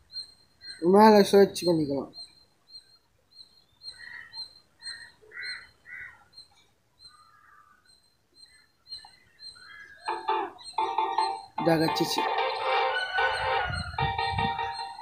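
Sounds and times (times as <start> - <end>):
faint high chirp: 0.0 - 15.0
birds cawing: 3.7 - 15.0.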